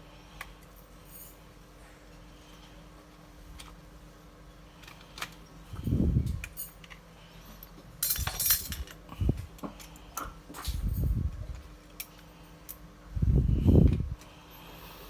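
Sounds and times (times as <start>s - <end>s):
small clicks of handled parts: 6.2s - 12.9s.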